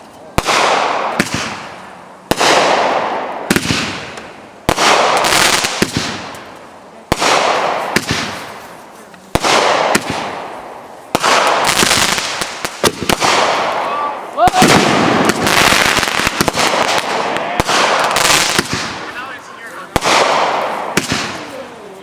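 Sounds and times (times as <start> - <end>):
fireworks bangs with crackle: 0.0 - 21.9
small firework pops: 3.5 - 10.4.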